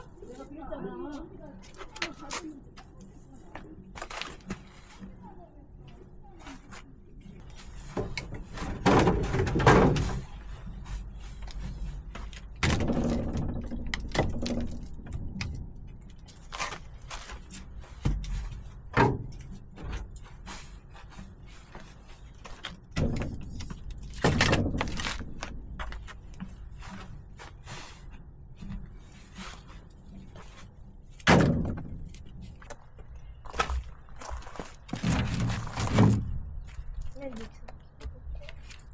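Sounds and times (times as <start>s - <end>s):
firewood logs knocking together: 7.8s - 20.4s, 21.7s - 27.6s, 28.6s - 38.9s.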